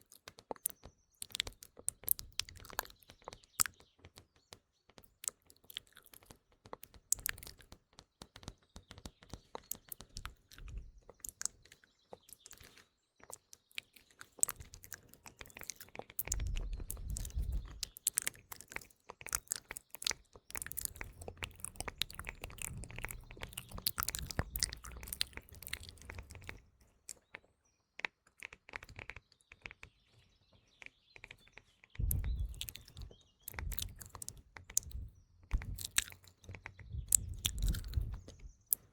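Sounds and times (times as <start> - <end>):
wet mouth clicks and smacks: 0.0 - 3.8, 5.0 - 27.3, 32.0 - 38.9
birds chirping: 0.0 - 38.9
low rumble: 32.0 - 32.8, 33.5 - 38.6.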